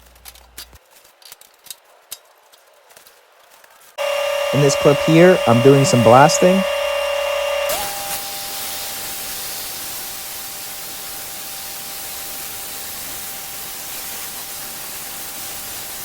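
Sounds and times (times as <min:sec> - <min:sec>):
faint steady whistle: 0:04.0 - 0:08.6
abrasive blaster hissing: 0:04.3 - 0:16.0.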